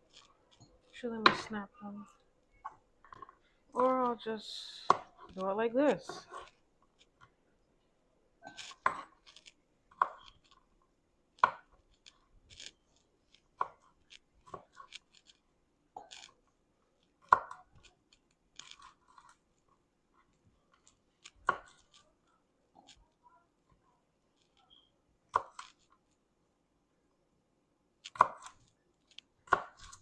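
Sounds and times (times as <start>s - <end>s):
knife chopping on cutting board: 29.5s - 30.0s.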